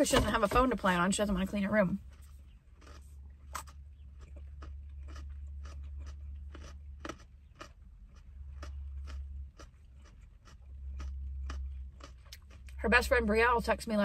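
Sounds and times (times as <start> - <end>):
steady low hum: 0.0 - 14.0
person chewing crunchy food: 2.0 - 12.8.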